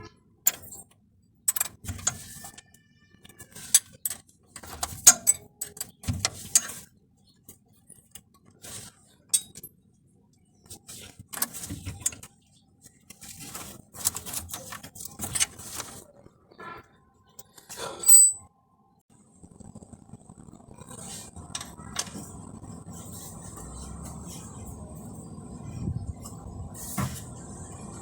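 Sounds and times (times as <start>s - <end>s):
metal tools clinking: 18.0s - 18.4s
metallic ring: 18.0s - 18.5s.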